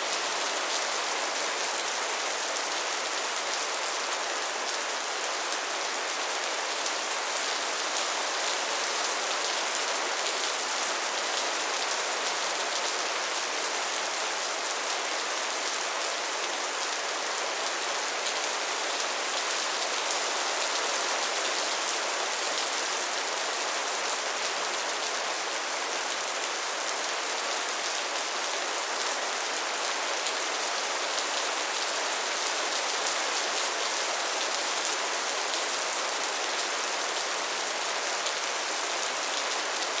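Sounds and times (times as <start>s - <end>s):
soft rain falling: 0.0s - 40.0s.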